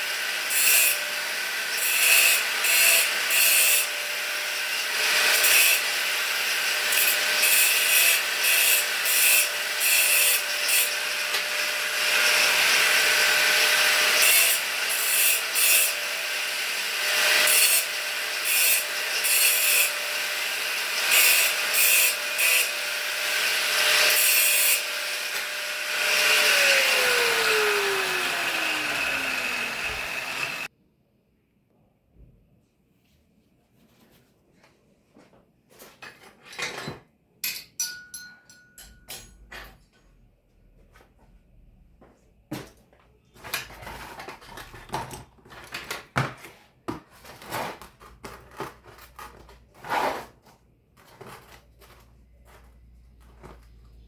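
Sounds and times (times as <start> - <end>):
angle grinder grinding metal: 0.0 - 30.7.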